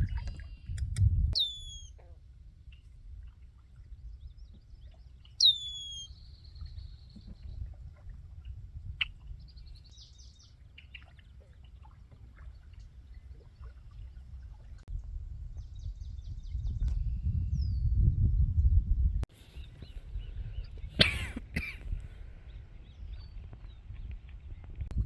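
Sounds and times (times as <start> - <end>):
bird call with buzzy trill: 1.4 - 1.9, 5.4 - 6.1
bird chirps and trills: 1.4 - 2.0, 4.8 - 7.2.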